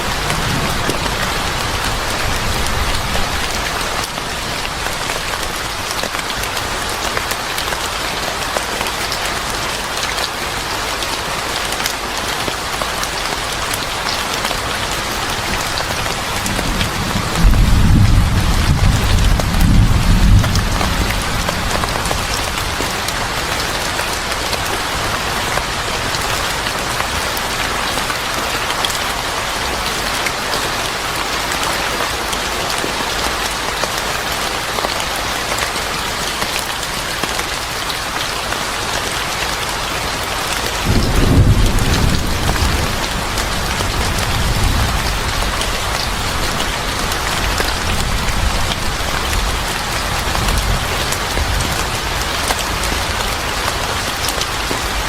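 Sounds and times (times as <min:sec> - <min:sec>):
rain falling: 0:00.0 - 0:55.0
thunder rumbling: 0:16.3 - 0:23.0, 0:40.8 - 0:52.0.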